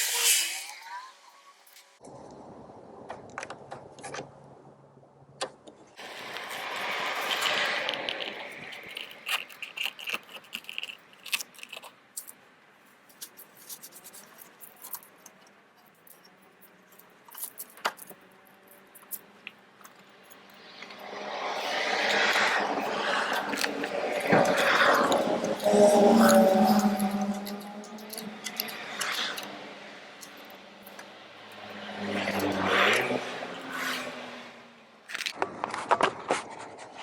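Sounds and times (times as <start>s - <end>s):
metal tools clinking and scraping: 22.0s - 34.0s.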